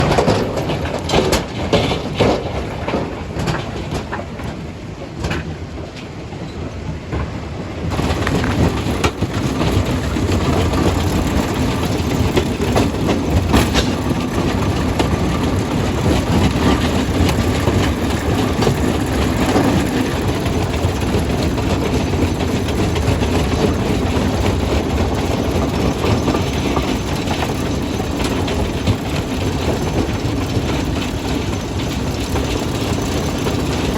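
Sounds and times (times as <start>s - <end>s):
crusher machine rumble: 7.9s - 33.9s
rock cracking and knocking: 8.1s - 9.2s.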